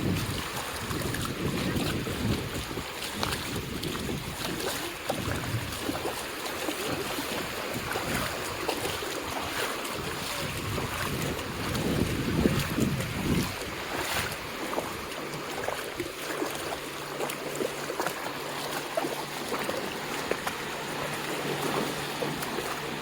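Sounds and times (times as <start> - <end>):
wind buffeting microphone: 0.0 - 17.1
ocean surf on beach: 0.0 - 23.0.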